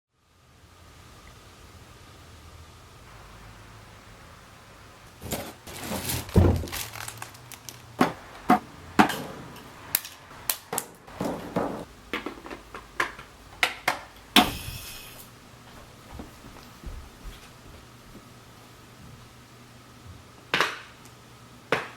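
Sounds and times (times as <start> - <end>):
cymbal crash: 14.4 - 15.3.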